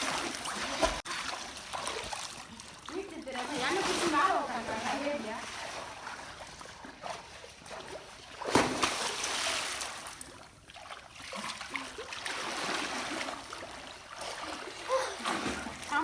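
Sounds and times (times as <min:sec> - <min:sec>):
swimmers splashing: 0:00.0 - 0:10.2
churning water: 0:00.0 - 0:16.0
loud splash: 0:08.4 - 0:10.1.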